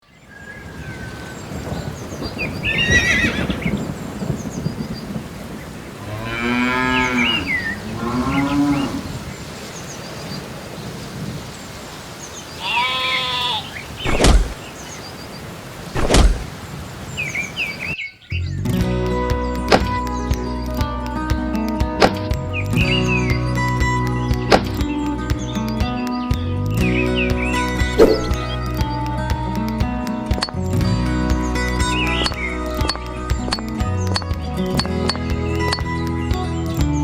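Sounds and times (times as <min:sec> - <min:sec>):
cattle mooing: 0:06.0 - 0:09.2, 0:12.6 - 0:13.7
sharp knocks: 0:14.1 - 0:14.6, 0:16.0 - 0:16.5
bird chirps: 0:17.1 - 0:18.7, 0:22.1 - 0:29.5, 0:31.4 - 0:37.0.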